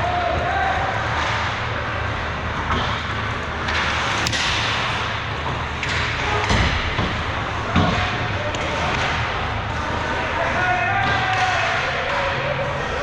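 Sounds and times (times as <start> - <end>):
sharp crack: 3.7 - 6.1
thump: 4.2 - 4.7.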